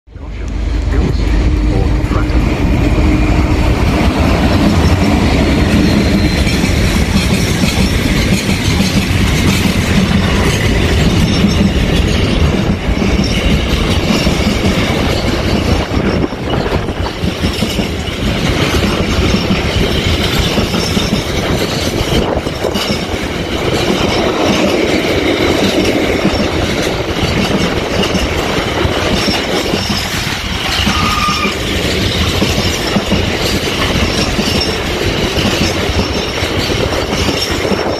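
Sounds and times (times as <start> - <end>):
diesel locomotive engine passing: 0.1 - 37.9
train wheels clattering over rail joints: 3.2 - 37.9
wheel squeal: 29.1 - 37.9.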